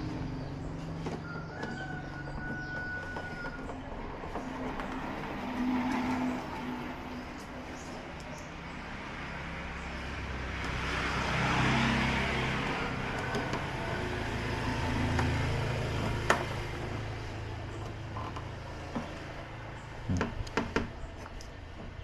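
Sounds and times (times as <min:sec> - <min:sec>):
vehicle engine passing: 0:04.0 - 0:20.6.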